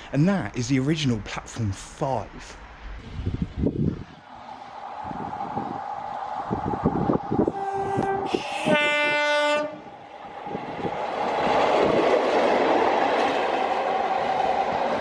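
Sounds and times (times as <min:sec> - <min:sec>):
train rushing past: 0:00.9 - 0:15.0
two-note train horn: 0:07.4 - 0:09.9.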